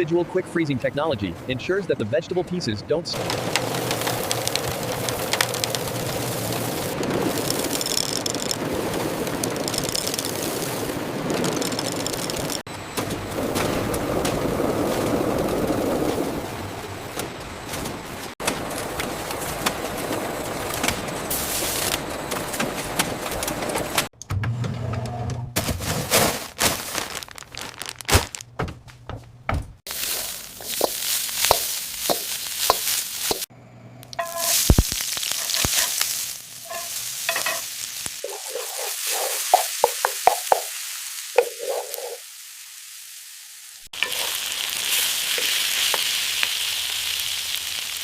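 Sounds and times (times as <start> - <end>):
food sizzling in frying: 3.2 - 12.7, 29.9 - 33.5, 34.2 - 48.0.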